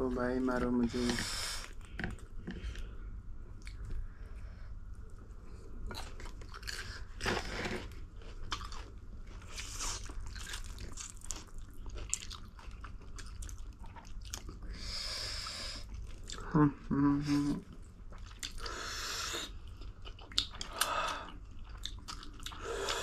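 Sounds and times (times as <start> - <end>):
chewing noodles: 5.9 - 14.7, 17.8 - 23.0.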